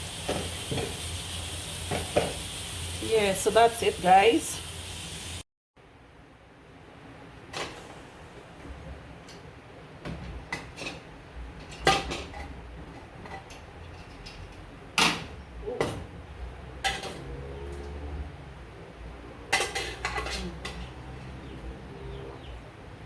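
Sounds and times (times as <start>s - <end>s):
kitchenware clatter: 10.5s - 16.1s, 16.8s - 17.3s, 19.5s - 21.0s
pots and utensils clinking: 11.6s - 12.6s, 16.8s - 17.3s, 19.5s - 21.0s.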